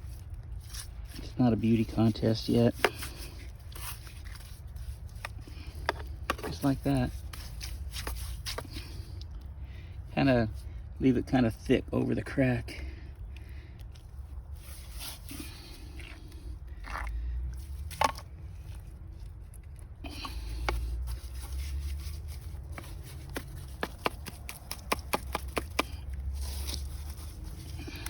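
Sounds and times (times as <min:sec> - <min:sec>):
paintbrush scraping on concrete: 0:00.6 - 0:09.0, 0:14.6 - 0:16.0, 0:20.1 - 0:28.0.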